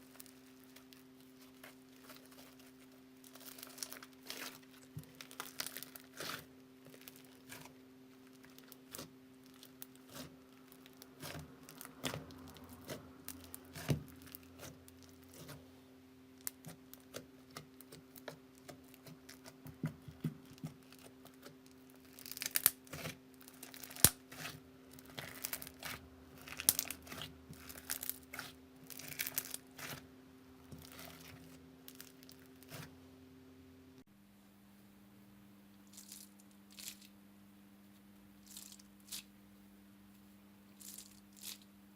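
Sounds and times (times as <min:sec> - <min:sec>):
faint steady hum: 0:00.0 - 0:41.9
slime crackling and popping: 0:00.1 - 0:15.6, 0:16.4 - 0:30.0, 0:30.7 - 0:32.9.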